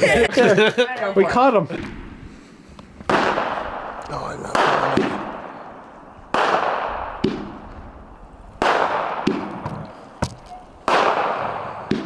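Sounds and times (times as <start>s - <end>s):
fireworks bangs and hissing bursts: 1.8s - 7.8s, 8.6s - 12.0s.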